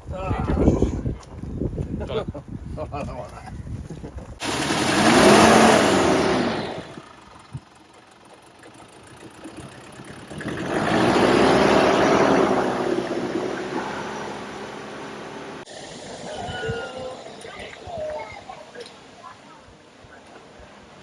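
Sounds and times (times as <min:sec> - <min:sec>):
vehicle engine passing: 0:04.4 - 0:16.3.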